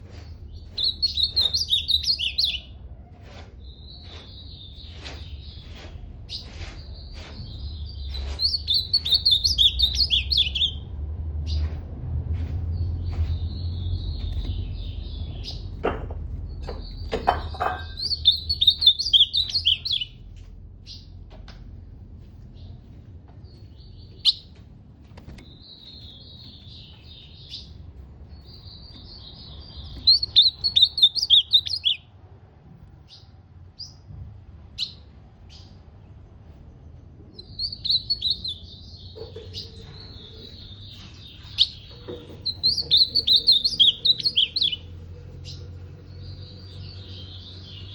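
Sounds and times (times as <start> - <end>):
bird warbling song: 0.0 - 2.8, 3.6 - 10.9, 16.5 - 20.2, 23.4 - 24.5, 25.3 - 32.1, 37.3 - 47.9.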